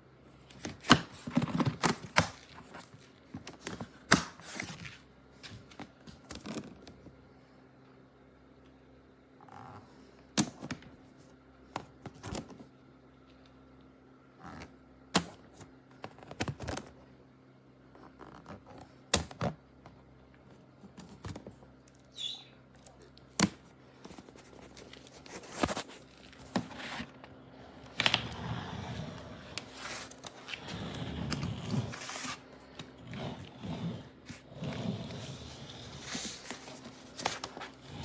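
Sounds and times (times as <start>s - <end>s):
rustling and shuffling: 23.7s - 38.0s.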